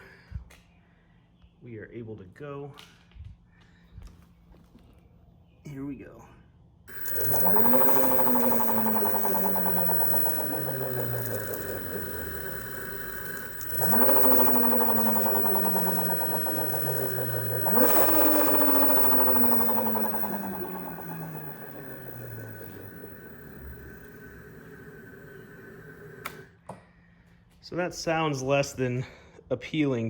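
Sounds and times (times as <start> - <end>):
fast rhythmic hammering: 6.9 - 24.8
electric motor whining: 6.9 - 26.5.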